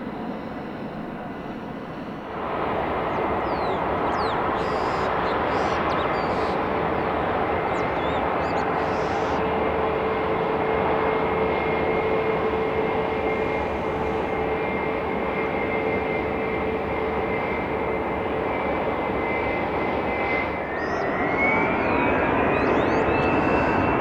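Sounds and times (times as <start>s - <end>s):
aircraft engines running: 0.0s - 24.0s
rising engine whine: 0.3s - 24.0s.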